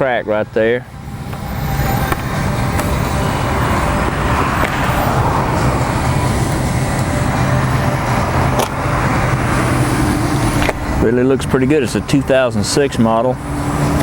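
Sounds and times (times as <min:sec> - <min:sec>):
low hum: 0:00.0 - 0:14.0
road traffic: 0:00.0 - 0:14.0.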